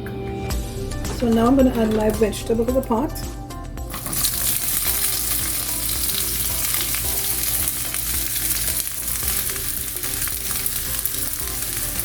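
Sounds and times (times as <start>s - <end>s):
vegetables sizzling in hot oil: 3.9s - 12.0s.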